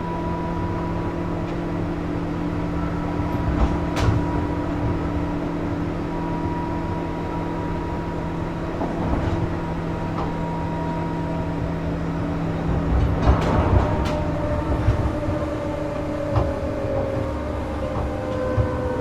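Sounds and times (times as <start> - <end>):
electric train running rumble: 0.0 - 19.0
faint clicks from rails: 12.6 - 19.0.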